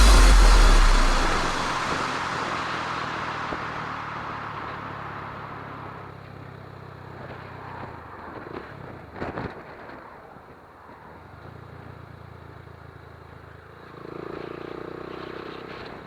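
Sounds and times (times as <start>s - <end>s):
low engine hum: 0.0s - 6.3s.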